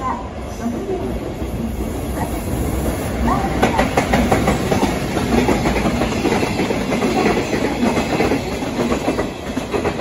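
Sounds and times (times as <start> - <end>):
train wheels clattering over rails: 2.8 - 10.0.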